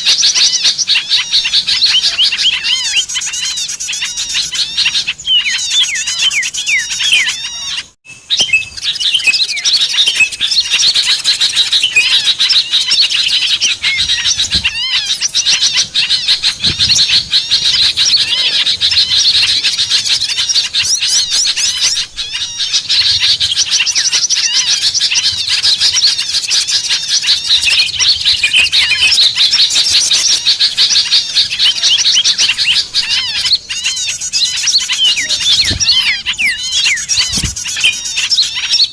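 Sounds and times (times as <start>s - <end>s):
songbirds chirping in chorus: 0.0s - 38.9s.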